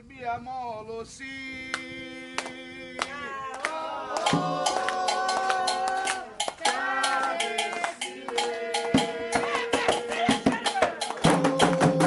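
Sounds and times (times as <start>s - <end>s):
voices chanting: 1.8s - 12.0s
sharp hand percussion strikes: 4.2s - 12.0s.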